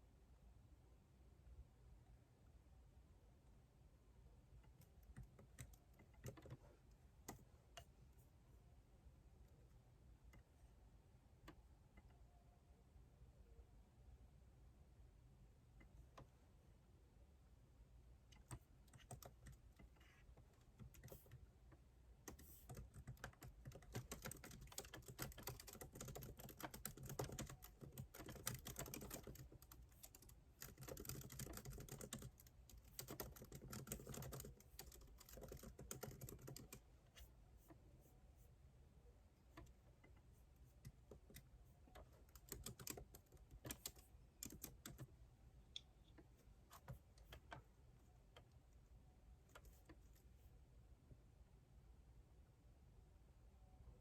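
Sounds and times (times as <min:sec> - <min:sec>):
faint keyboard typing: 0:04.5 - 0:08.3, 0:18.2 - 0:38.6, 0:39.4 - 0:50.5.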